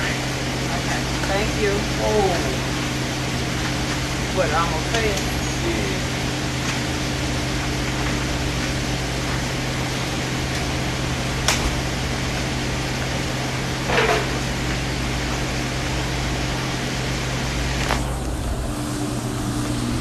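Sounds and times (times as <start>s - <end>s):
kitchen ventilation hum: 0.0s - 20.0s
serving ware clattering: 13.9s - 14.5s.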